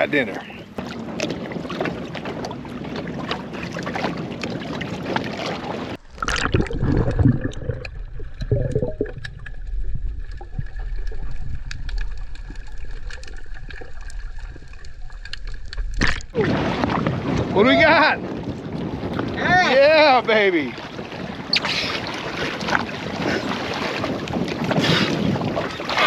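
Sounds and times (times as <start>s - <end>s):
wind on microphone: 0.0s - 15.0s, 15.6s - 26.0s
water sloshing: 0.3s - 17.6s, 20.4s - 26.0s
muffled underwater rumble: 0.4s - 21.6s
underwater bubbling: 0.5s - 17.5s.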